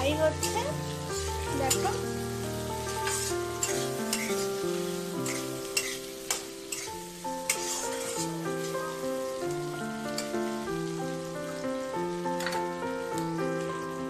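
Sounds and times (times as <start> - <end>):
background music: 0.0 - 14.0
onion and tomato sizzling in oil: 0.0 - 14.0
spatula scraping pan: 2.8 - 8.8.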